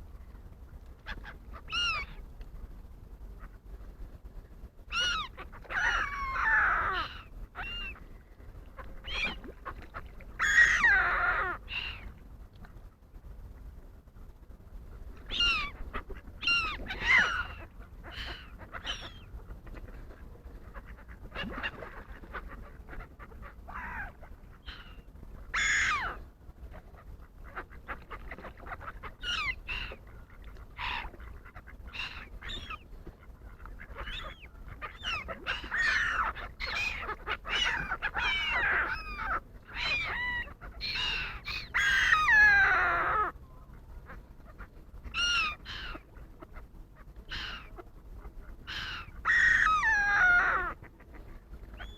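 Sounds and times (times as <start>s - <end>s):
wild birds calling: 1.0s - 2.2s, 4.9s - 12.2s, 15.2s - 26.2s, 26.8s - 51.9s.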